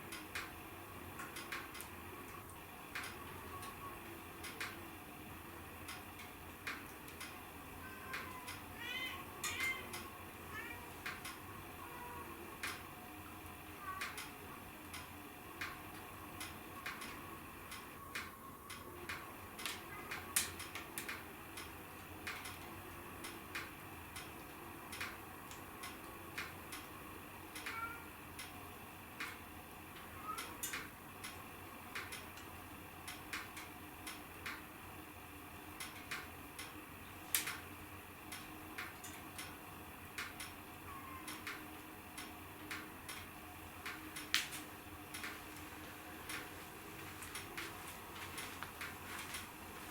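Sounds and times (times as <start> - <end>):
wood fire crackling: 12.6 - 27.0, 29.1 - 40.7, 41.3 - 49.9.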